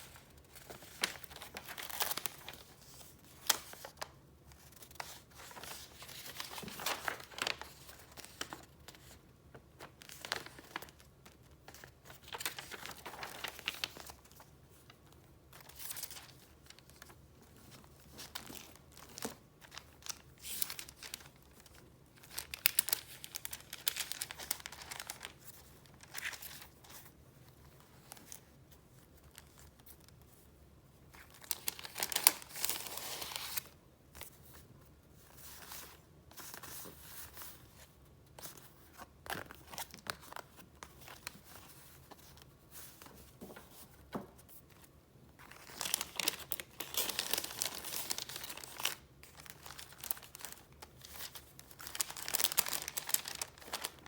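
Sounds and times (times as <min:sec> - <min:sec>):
paper rustling and crinkling: 0:00.0 - 0:30.4, 0:31.1 - 0:54.0.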